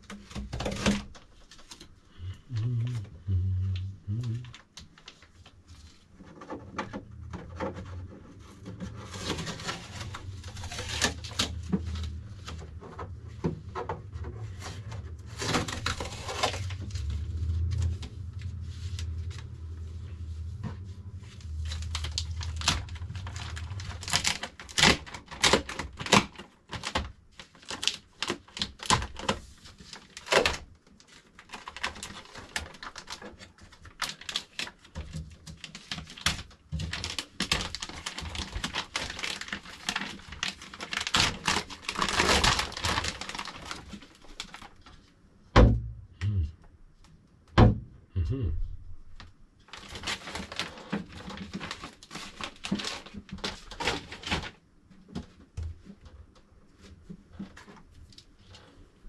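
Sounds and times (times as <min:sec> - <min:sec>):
steady low hum: 0:02.1 - 0:04.6, 0:06.9 - 0:24.7
packaging clicks and rustles: 0:04.5 - 0:19.8, 0:21.3 - 0:45.0, 0:49.7 - 0:56.0.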